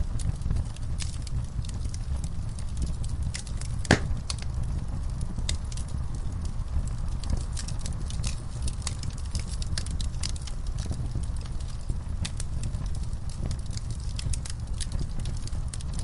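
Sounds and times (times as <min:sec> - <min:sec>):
low rumble of flames: 0:00.0 - 0:16.0
wood fire crackling: 0:00.0 - 0:16.0.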